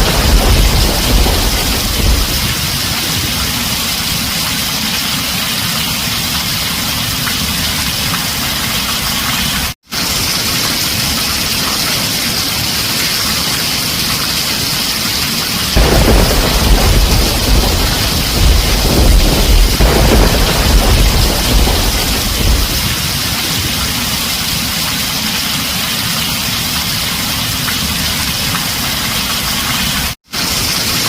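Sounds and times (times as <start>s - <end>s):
thunder rumble: 0.0s - 4.5s, 15.7s - 24.8s
heavy rain on a tin roof: 0.0s - 31.0s.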